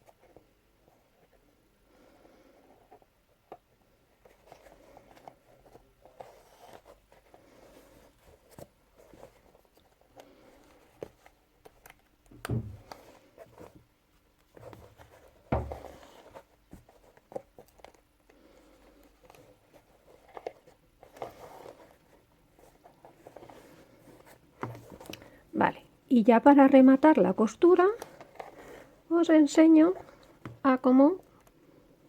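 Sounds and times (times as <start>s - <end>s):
needle and thread rustling: 0.0s - 31.6s
handling knocks: 12.3s - 13.0s, 15.5s - 16.0s.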